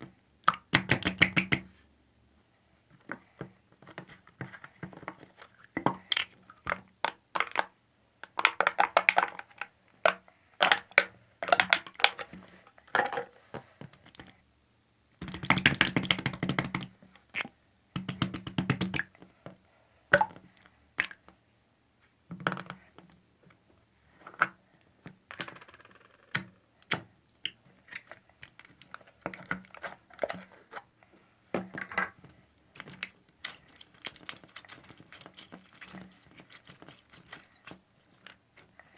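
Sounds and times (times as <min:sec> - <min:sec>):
slime crackling and popping: 0:32.8 - 0:38.4.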